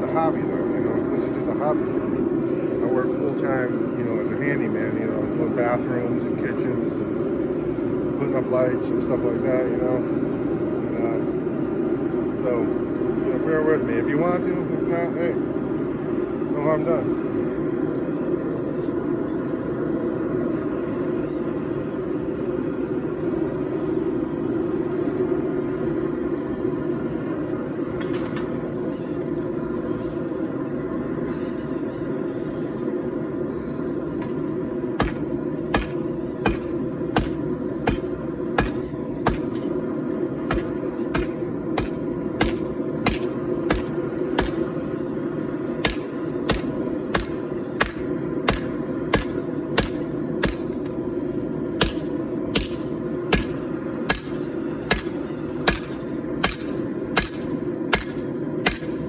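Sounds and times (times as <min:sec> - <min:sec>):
hammer ringing on anvil: 0:35.8 - 0:39.5, 0:45.9 - 0:50.7.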